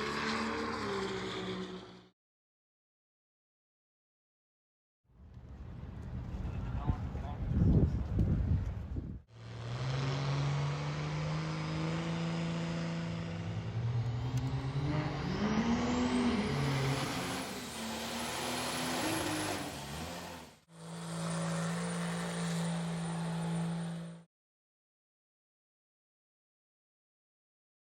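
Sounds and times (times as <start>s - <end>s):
truck engine revving: 0.0s - 2.1s, 9.3s - 24.2s
truck engines running: 0.0s - 2.1s, 8.6s - 24.2s.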